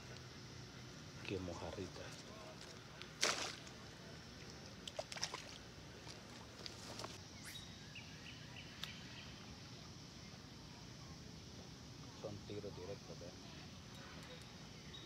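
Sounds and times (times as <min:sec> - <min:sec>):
bird chirping: 0:07.3 - 0:09.4.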